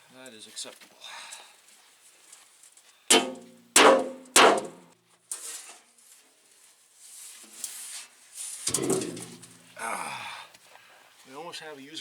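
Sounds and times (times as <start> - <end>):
sledgehammer striking metal: 3.1 - 4.9.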